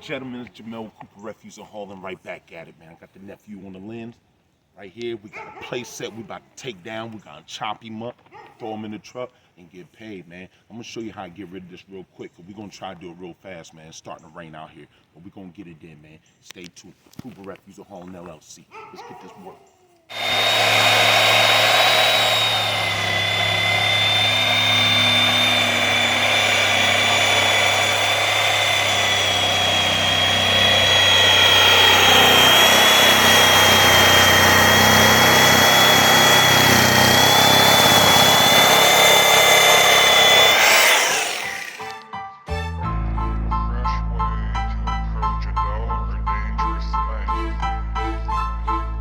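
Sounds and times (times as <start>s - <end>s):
power saw cutting wood: 20.1s - 42.1s.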